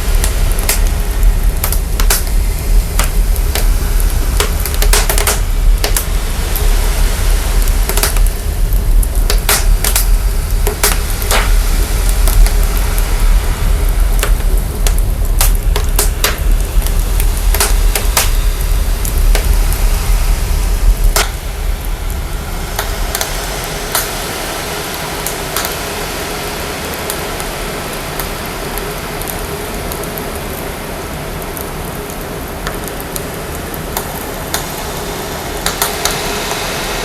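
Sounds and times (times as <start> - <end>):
deep sub-bass rumble: 0.0 - 23.1
fire crackling and popping: 0.0 - 37.0
steady hiss: 0.0 - 37.0.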